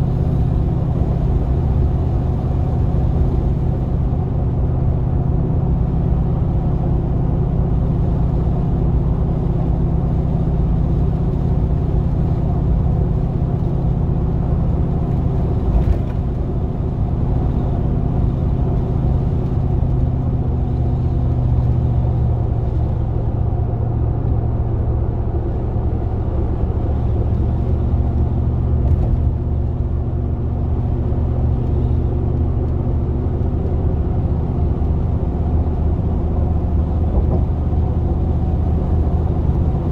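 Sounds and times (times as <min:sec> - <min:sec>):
van engine running while driving: 0:00.0 - 0:39.9.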